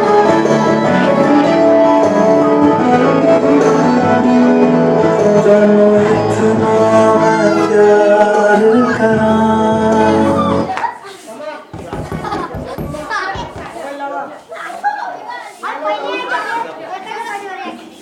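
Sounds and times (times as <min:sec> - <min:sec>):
song with sung notes: 0:00.0 - 0:10.7.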